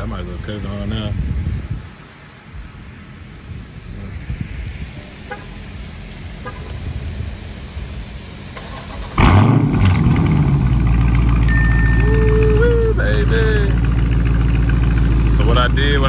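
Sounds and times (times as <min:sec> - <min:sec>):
car engine starting with exhaust flare: 0:00.0 - 0:16.0
low background rumble: 0:00.0 - 0:16.0
faint beeps: 0:11.4 - 0:13.6.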